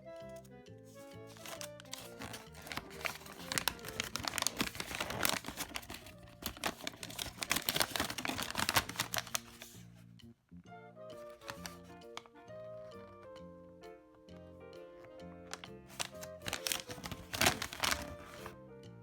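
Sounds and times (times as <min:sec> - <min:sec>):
background music: 0:00.0 - 0:19.0
toy packaging crinkling and tearing: 0:00.2 - 0:09.8, 0:11.2 - 0:12.3, 0:15.5 - 0:18.5.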